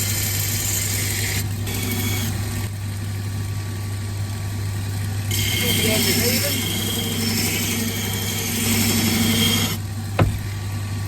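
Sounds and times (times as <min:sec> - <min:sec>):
sharpening machine motor humming: 0:00.0 - 0:02.7, 0:05.0 - 0:10.6.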